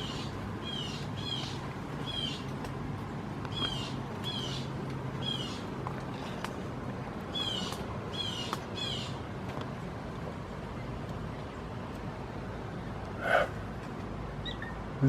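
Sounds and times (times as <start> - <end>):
harsh downward-sliding calls: 13.1 - 13.6.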